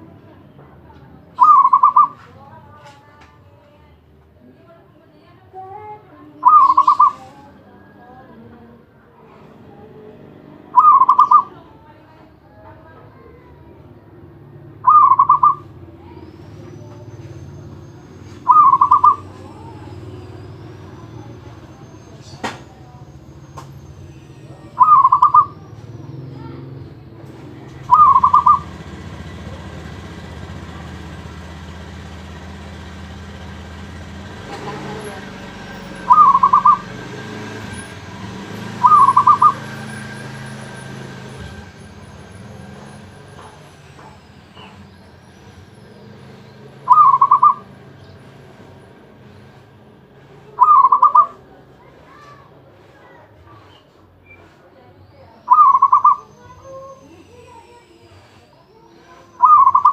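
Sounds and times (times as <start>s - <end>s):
dove cooing: 1.4s - 2.2s, 6.4s - 7.4s, 10.7s - 11.6s, 14.8s - 15.8s, 18.4s - 19.9s, 24.7s - 25.7s, 27.7s - 28.7s, 35.8s - 36.9s, 38.8s - 40.0s, 46.8s - 47.7s, 50.5s - 51.4s, 55.5s - 56.7s, 59.4s - 59.9s.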